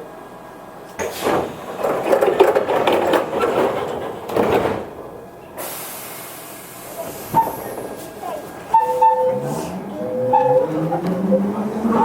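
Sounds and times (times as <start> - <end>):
train mechanical clattering: 0.0 - 12.0
compressed air hiss: 5.6 - 8.1.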